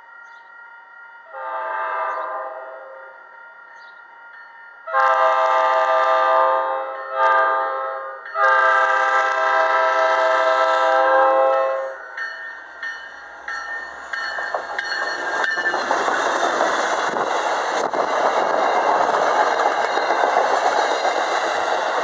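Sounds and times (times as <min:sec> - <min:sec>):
train air horn blasts: 0:01.3 - 0:03.1, 0:04.9 - 0:12.0.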